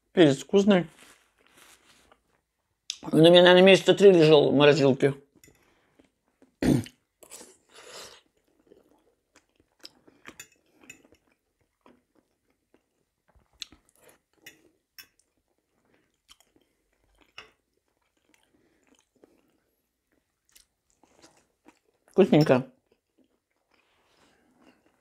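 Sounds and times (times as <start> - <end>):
person chewing food: 5.4 - 22.2, 22.8 - 25.0.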